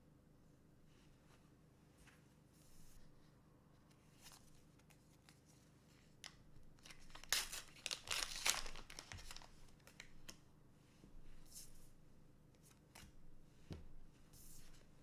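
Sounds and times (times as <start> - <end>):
foil wrapper crinkling and tearing: 6.8 - 10.1.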